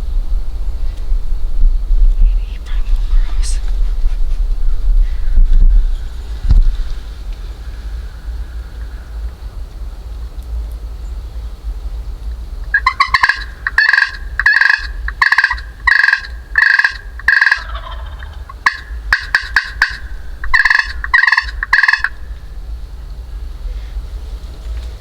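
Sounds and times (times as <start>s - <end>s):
steady low rumble: 0.0s - 25.0s
turkey calling: 12.7s - 22.6s.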